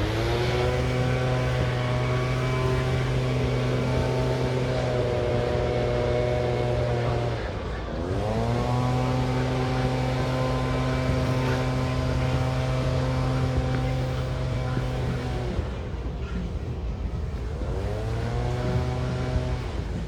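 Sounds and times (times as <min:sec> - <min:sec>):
motor running: 0:00.0 - 0:15.8.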